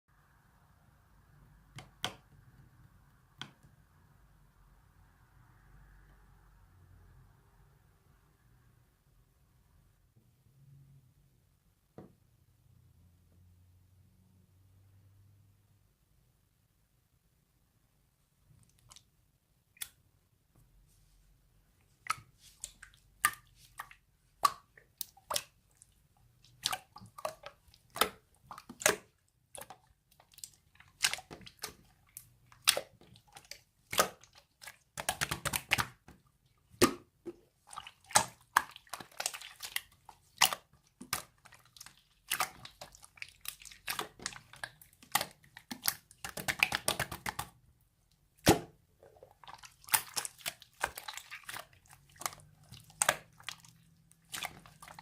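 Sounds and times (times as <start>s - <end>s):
slime clicking and popping: 30.9s - 36.0s, 38.0s - 47.6s.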